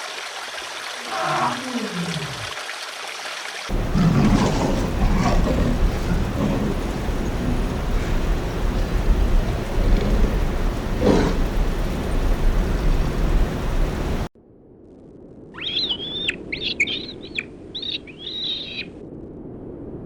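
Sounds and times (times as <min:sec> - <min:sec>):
bird whistled calls: 0:15.6 - 0:18.9.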